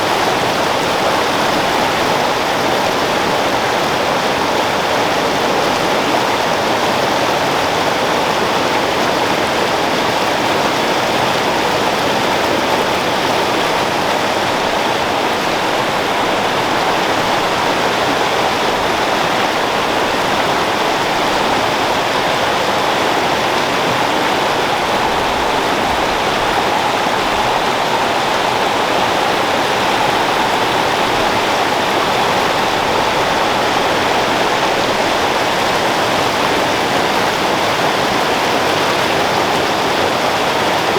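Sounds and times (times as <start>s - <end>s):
creek water flowing over rocks: 0.0s - 40.9s.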